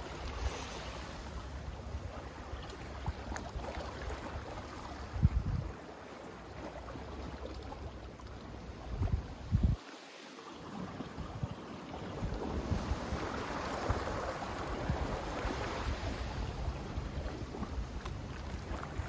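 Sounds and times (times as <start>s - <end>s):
sea surf washing: 0.0s - 2.4s, 12.2s - 19.0s
wind buffeting microphone: 5.0s - 5.8s, 8.9s - 9.8s, 11.2s - 19.0s.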